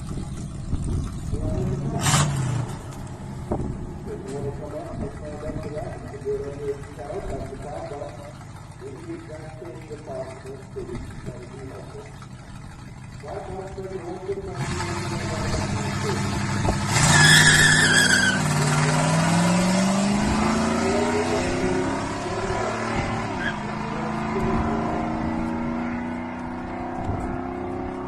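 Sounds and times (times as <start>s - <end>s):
truck engine accelerating: 0.0s - 28.0s
tire squeal: 16.8s - 19.0s, 23.2s - 23.8s.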